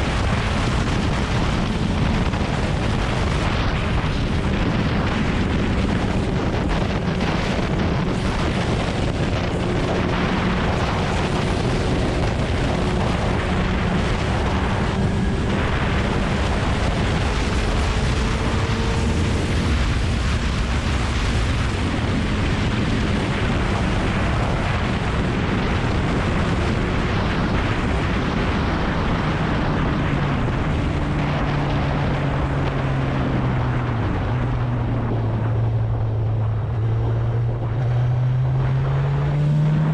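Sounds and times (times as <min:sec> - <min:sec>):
motorcycle engine running: 0:00.0 - 0:28.2
wind rush on microphone: 0:00.0 - 0:39.9.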